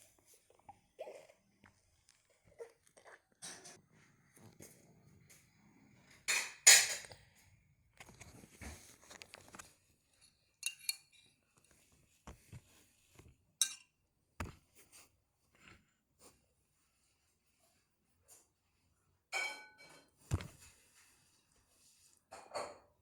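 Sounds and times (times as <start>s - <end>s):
clatter of dishes: 3.4s - 3.8s, 6.2s - 7.2s, 19.4s - 20.4s, 22.3s - 23.0s
dishes clinking and knocking: 6.3s - 7.2s, 10.6s - 11.3s, 13.6s - 13.9s, 19.4s - 20.2s, 22.3s - 23.0s.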